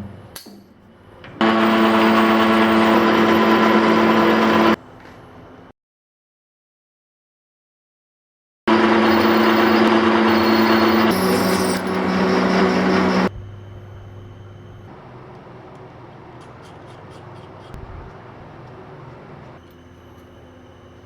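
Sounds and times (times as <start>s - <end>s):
metal-cutting machine running: 1.4s - 4.8s, 8.7s - 15.4s
motor hum: 8.7s - 21.0s.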